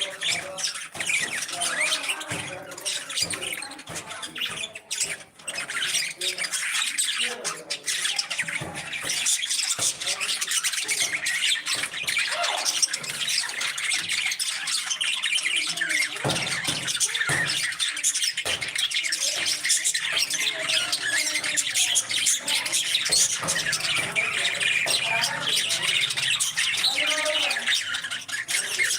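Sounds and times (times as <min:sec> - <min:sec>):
parrots chattering and squawking: 0:00.0 - 0:28.9.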